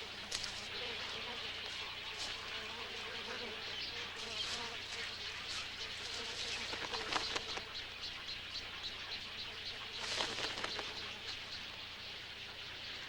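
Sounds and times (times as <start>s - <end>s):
waterbirds chattering calls: 3.3s - 13.0s.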